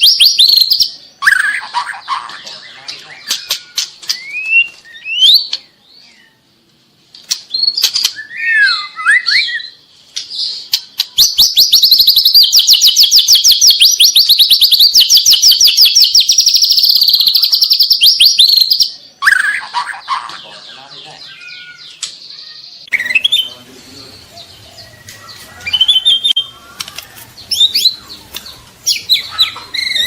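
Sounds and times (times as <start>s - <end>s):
bird singing whistled notes: 0.0s - 1.5s, 2.4s - 6.4s, 7.5s - 9.8s, 11.0s - 19.6s, 22.8s - 26.6s, 27.4s - 30.0s
fast bird trill: 11.1s - 22.0s, 22.8s - 30.0s.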